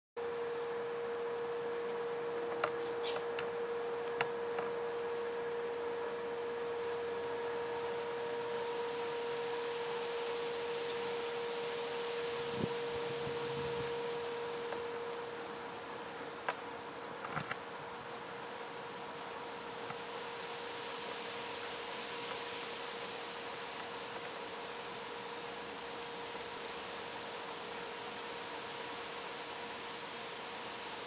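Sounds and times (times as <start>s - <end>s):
steady hum-like tone: 0.2s - 31.0s
light hiss: 7.7s - 31.0s.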